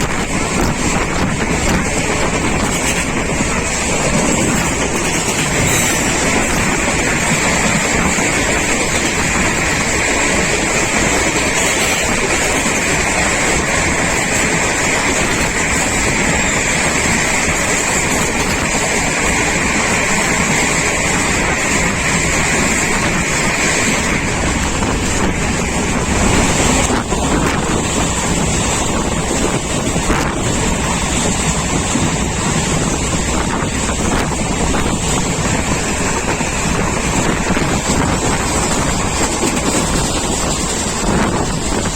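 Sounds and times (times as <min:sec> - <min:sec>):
train wheels on rails: 0:00.0 - 0:41.9
wind rushing past train: 0:00.0 - 0:41.9.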